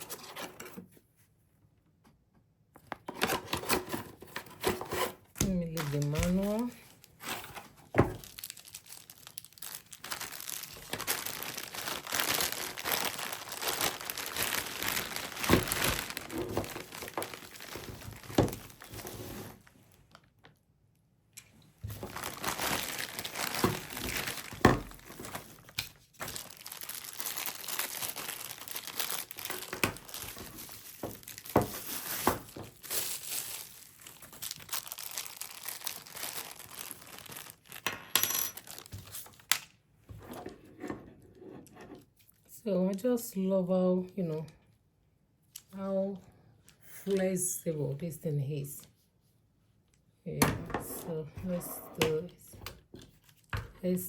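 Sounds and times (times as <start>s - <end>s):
packaging crinkling and rustling: 5.5s - 20.6s, 21.8s - 39.8s.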